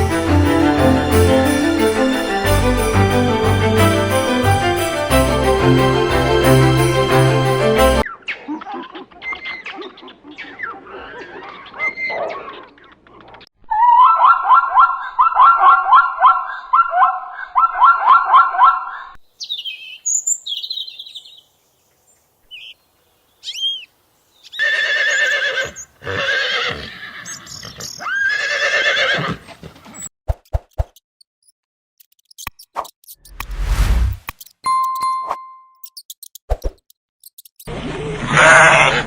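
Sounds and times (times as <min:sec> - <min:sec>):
zebra yelping barks: 0:13.7 - 0:19.1.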